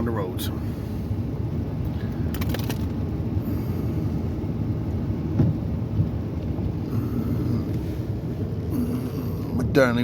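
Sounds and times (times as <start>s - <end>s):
car driving on snowy road: 0.0s - 10.0s
thump: 5.4s - 5.6s.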